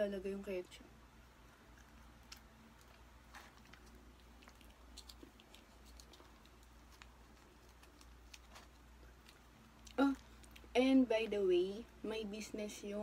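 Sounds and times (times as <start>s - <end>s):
person chewing: 1.4s - 10.7s.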